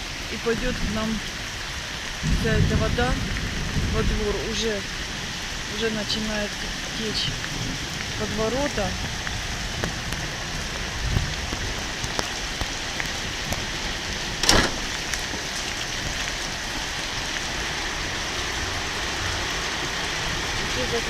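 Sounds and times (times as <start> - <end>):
heavy rain falling: 0.0 - 21.0
sharp knock: 14.4 - 14.8.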